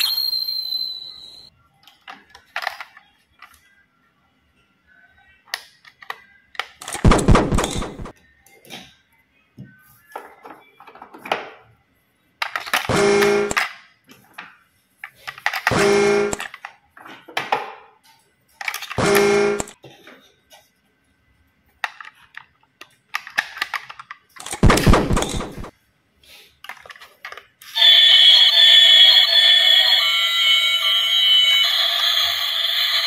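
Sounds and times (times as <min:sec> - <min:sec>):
toy electronic buzzy tone: 0:12.9 - 0:13.6, 0:15.7 - 0:16.5, 0:19.0 - 0:19.8, 0:27.7 - 0:33.0.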